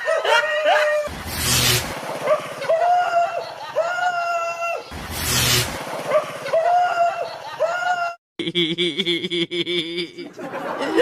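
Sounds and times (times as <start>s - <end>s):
harsh noisy bursts: 1.1s - 2.9s, 4.9s - 6.5s.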